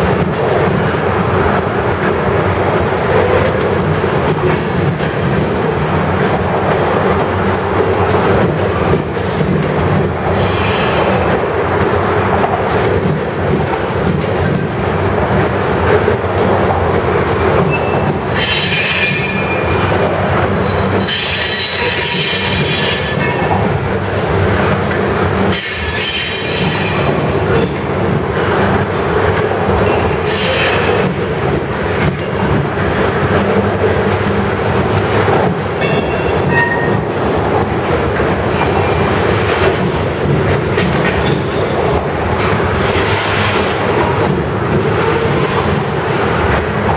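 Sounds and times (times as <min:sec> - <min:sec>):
steel wheels rumbling on rail: 0:00.0 - 0:46.9
high-pitched wheel squeals: 0:36.5 - 0:37.0.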